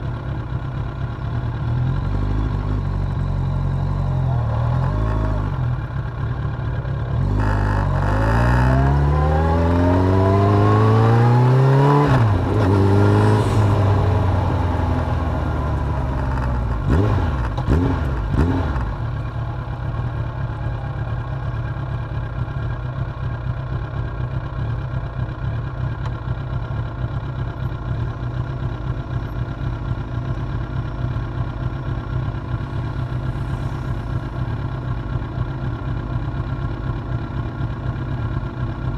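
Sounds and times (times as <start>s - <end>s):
motorcycle engine revving and idling: 0.0s - 38.9s.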